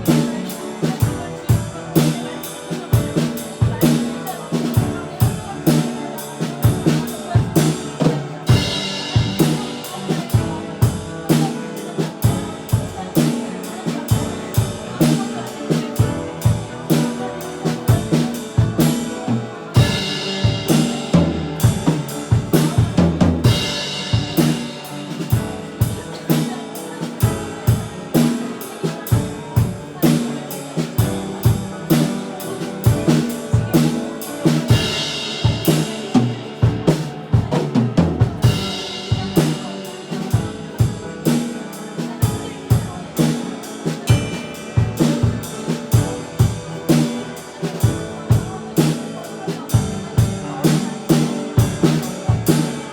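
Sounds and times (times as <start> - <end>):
drum kit beat: 0.0 - 49.1, 49.7 - 52.9
worship band music: 0.0 - 49.1, 50.7 - 52.9
sustained piano chords: 6.1 - 13.4.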